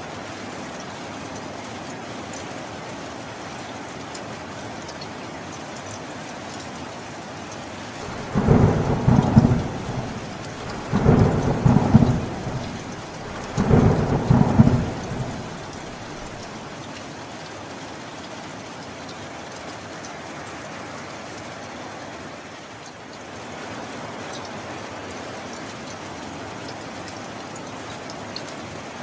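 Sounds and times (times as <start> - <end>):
steady rain: 0.0 - 29.0
thunder rolling: 8.0 - 16.5.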